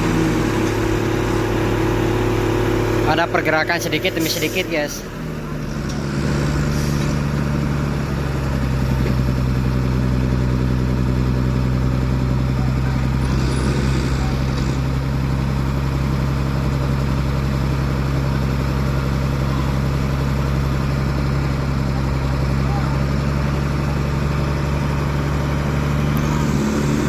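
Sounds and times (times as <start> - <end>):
diesel truck engine under load: 0.0 - 27.0.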